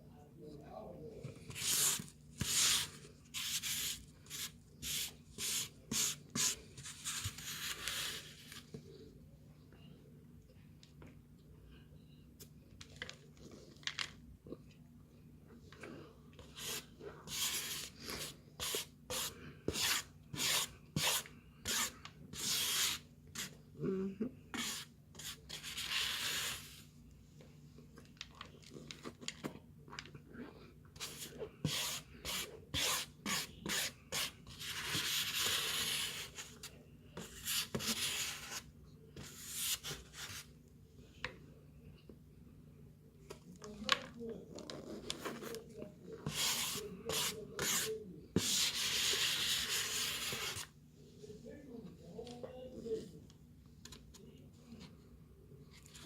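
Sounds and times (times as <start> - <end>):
scraping packed starch: 1.5 - 8.5, 31.0 - 36.6.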